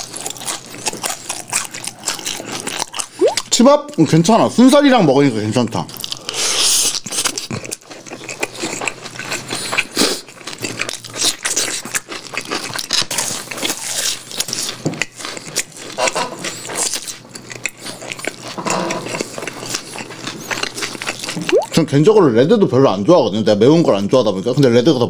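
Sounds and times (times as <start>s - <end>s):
person chewing food: 0.0s - 3.6s, 5.9s - 21.8s
mouth clicks: 3.2s - 3.5s, 21.5s - 21.8s.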